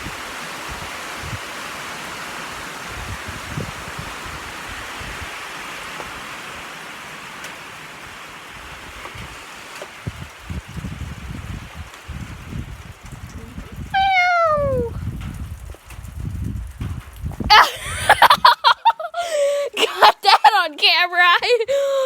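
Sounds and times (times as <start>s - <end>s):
rain falling steadily: 0.0s - 22.0s.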